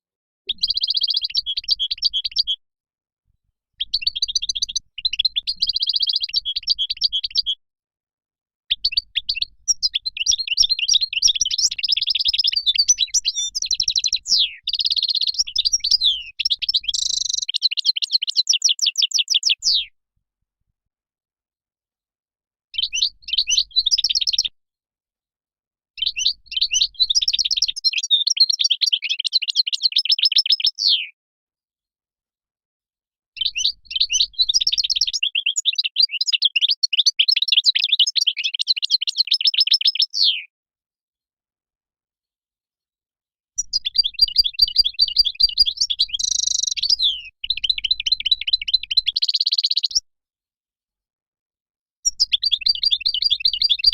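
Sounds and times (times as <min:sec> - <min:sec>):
goldfinch twittering song: 0:00.5 - 0:02.6, 0:03.8 - 0:07.6, 0:08.7 - 0:19.8, 0:22.8 - 0:24.5, 0:26.0 - 0:31.0, 0:33.4 - 0:40.4, 0:43.6 - 0:50.0, 0:52.1 - 0:53.9.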